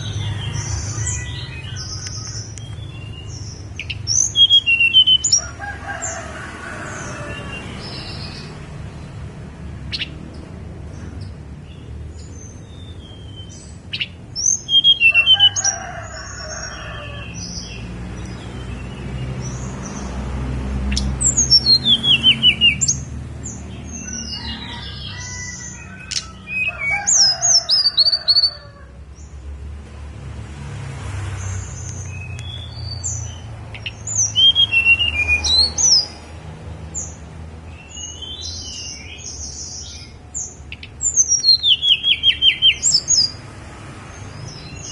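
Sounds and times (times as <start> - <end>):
bird chirps: 0.0 - 6.2, 9.9 - 20.1, 20.9 - 28.6, 31.7 - 36.3, 36.9 - 43.4
songbird singing: 0.0 - 29.8, 31.1 - 44.9.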